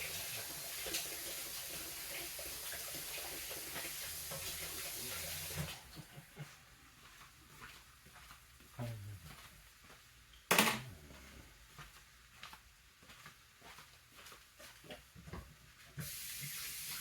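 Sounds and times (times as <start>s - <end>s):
tap water running: 0.0s - 6.1s, 16.0s - 17.0s
sharp kitchen clatter: 10.5s - 10.9s.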